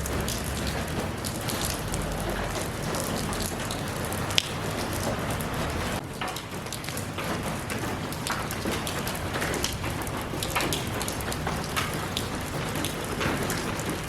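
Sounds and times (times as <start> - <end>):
rain with close drops: 0.0 - 14.0.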